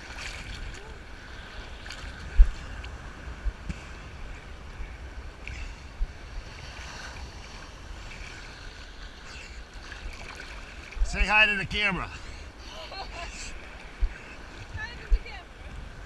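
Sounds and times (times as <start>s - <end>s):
wind buffeting microphone: 0.0s - 8.9s, 13.2s - 16.0s
ocean surf washing: 0.0s - 16.0s.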